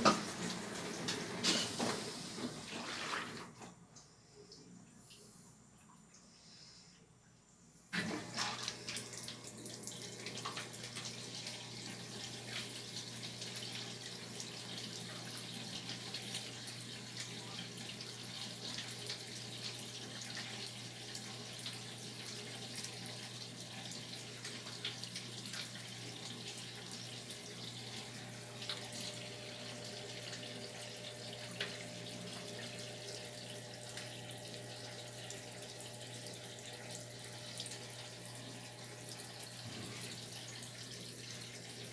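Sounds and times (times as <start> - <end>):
water rushing into drum: 0.0 - 3.7.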